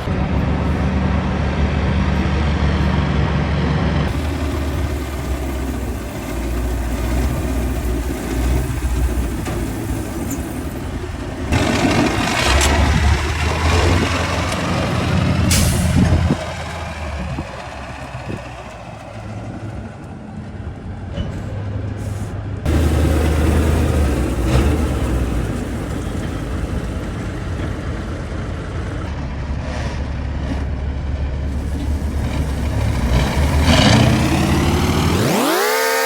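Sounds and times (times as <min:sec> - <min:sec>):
diesel truck engine running: 0:00.0 - 0:36.0
air hiss: 0:15.4 - 0:16.8.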